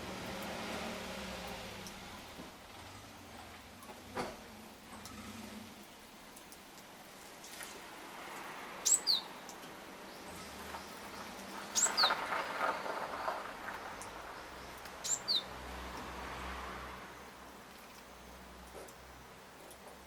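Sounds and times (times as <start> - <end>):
songbird calling: 8.8 - 9.4, 11.2 - 12.9, 15.0 - 15.5.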